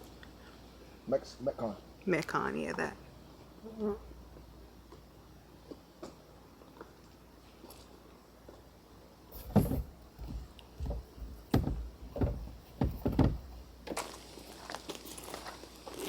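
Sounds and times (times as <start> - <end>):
dull thumps and knocks: 9.4 - 14.0.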